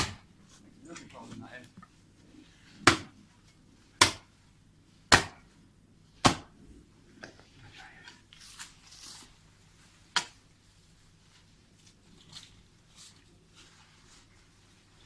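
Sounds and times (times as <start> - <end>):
scraping and rustling: 7.6 - 15.0.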